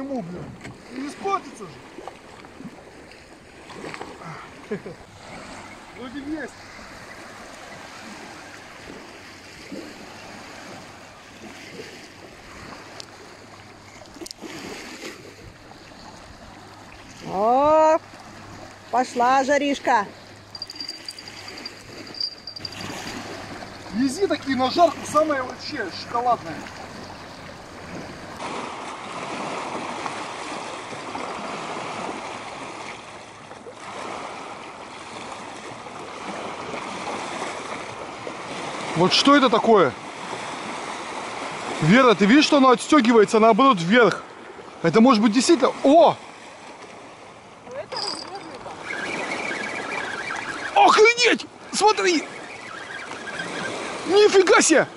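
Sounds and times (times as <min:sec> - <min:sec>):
wind blowing: 0:00.0 - 0:31.0, 0:47.4 - 0:54.9
water lapping: 0:00.0 - 0:54.9.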